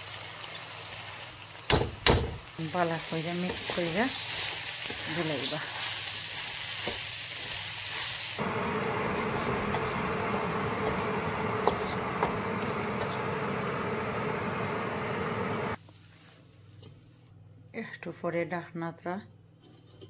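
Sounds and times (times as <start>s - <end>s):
food sizzling in oil: 0.0s - 15.8s
steady buzzing hum: 8.4s - 15.8s.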